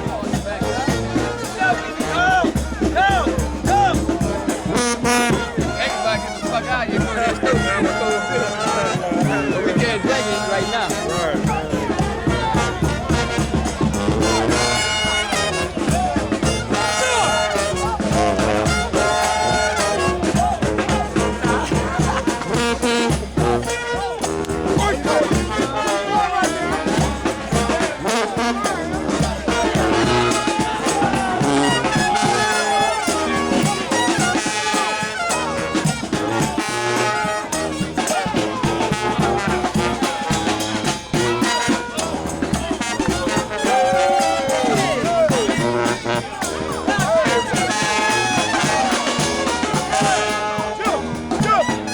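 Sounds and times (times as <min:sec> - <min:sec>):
brass band playing: 0:00.0 - 0:51.9.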